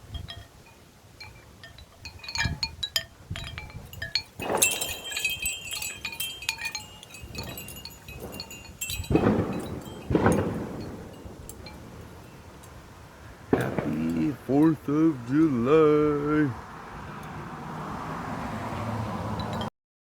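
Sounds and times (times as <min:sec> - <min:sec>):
wind chimes ringing: 0:00.0 - 0:12.9, 0:19.3 - 0:19.7
gusting storm wind: 0:00.0 - 0:19.7.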